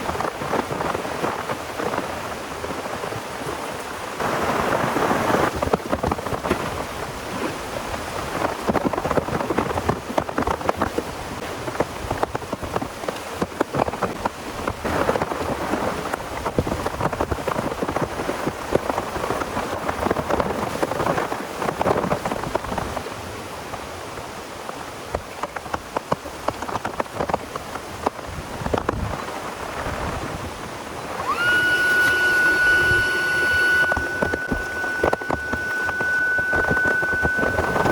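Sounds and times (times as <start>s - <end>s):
steady high whine: 30.9s - 37.9s.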